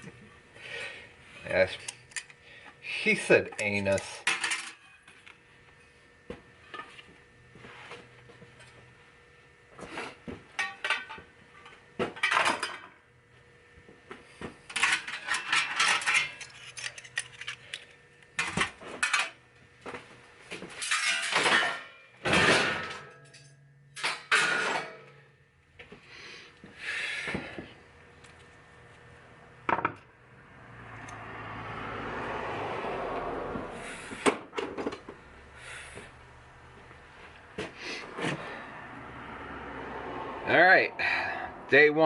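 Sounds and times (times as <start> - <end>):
metal scrap parts clattering: 4.2 - 4.8, 10.6 - 11.2, 12.2 - 12.9, 14.7 - 19.4, 20.8 - 25.2.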